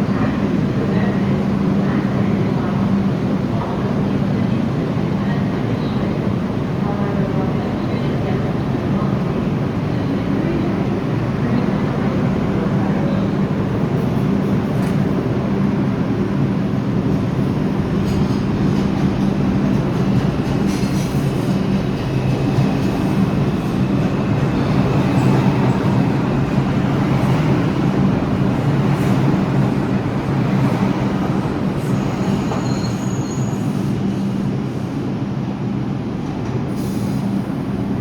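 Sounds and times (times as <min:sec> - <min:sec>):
subway train rumble and hum: 0:00.0 - 0:38.0
faint high wheel squeal: 0:31.9 - 0:34.0.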